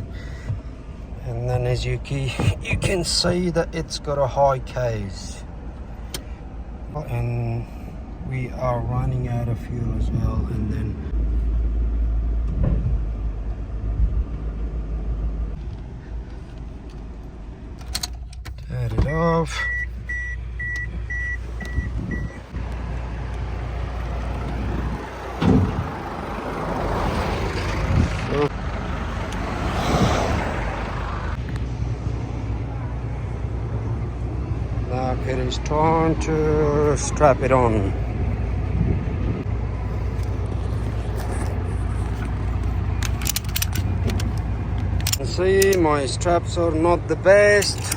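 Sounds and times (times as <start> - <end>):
thump: 12.5 - 13.0, 25.4 - 25.8
engine idling: 15.4 - 29.6, 30.4 - 47.9
electronic warning beeps: 19.1 - 22.4
metallic strap clicks: 43.0 - 45.8, 47.6 - 47.9.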